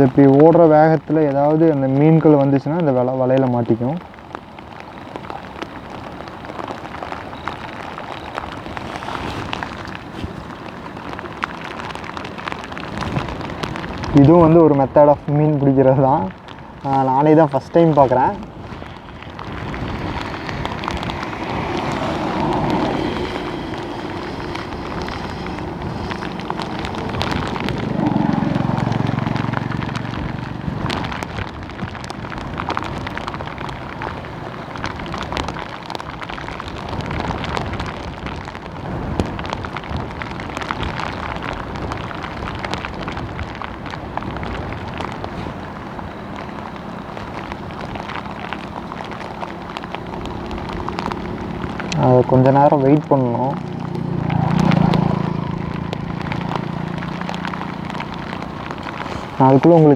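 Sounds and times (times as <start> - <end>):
small splashes and ticks: 0.0 - 15.4, 16.0 - 59.9
fast-flowing stream rushing: 5.0 - 15.1, 16.4 - 31.6.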